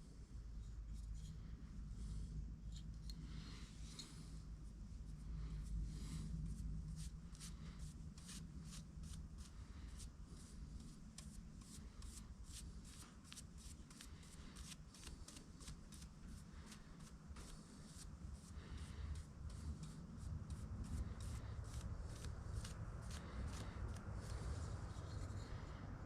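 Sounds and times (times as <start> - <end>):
paintbrush scratching on wood: 6.5 - 25.3.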